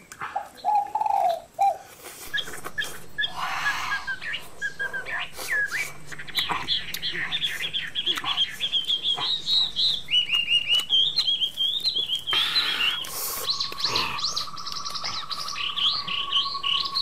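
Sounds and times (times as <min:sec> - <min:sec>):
small birds chirping: 0:00.0 - 0:17.0
steady high drone: 0:01.9 - 0:17.0.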